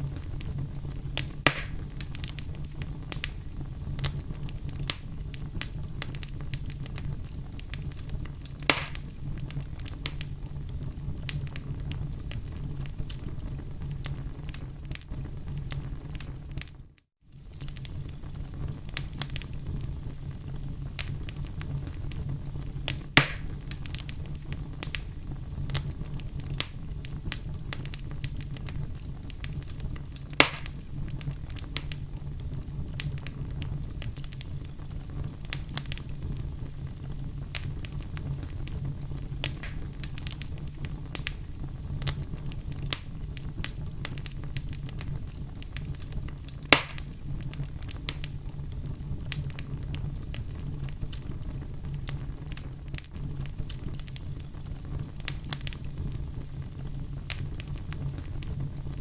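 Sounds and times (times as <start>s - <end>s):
low fire rumble: 0.0s - 59.0s
wood fire crackling: 0.0s - 59.0s
sharp loud pops: 1.5s - 1.8s, 8.7s - 9.1s, 23.2s - 23.5s, 30.4s - 30.8s, 46.8s - 47.0s.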